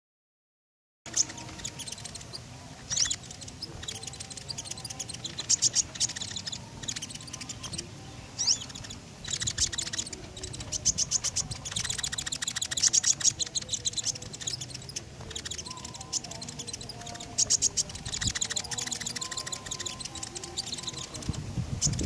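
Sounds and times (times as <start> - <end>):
songbird singing in chattering trills: 1.1 - 22.0.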